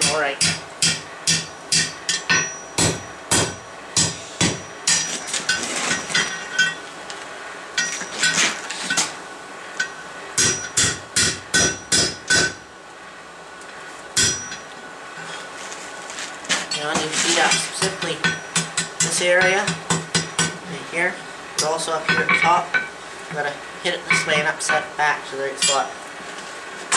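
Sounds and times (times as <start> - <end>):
hammer striking steel on anvil: 0.0 - 6.8, 9.8 - 12.6, 14.2 - 14.6, 16.9 - 20.6.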